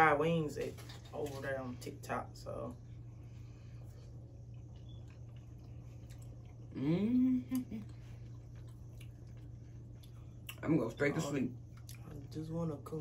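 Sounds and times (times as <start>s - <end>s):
steady low hum: 0.0s - 13.0s
people chewing: 3.2s - 12.4s
person humming mmm: 6.7s - 8.0s.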